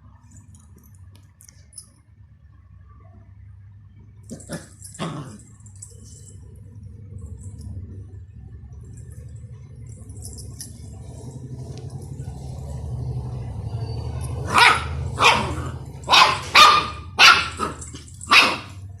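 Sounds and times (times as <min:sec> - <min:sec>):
steady low hum: 0:00.0 - 0:19.0
puppy barking: 0:14.2 - 0:18.9.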